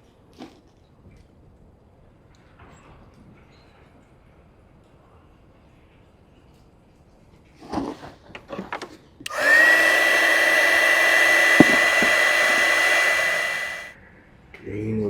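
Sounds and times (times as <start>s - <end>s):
heat gun fan whine: 9.3s - 13.9s.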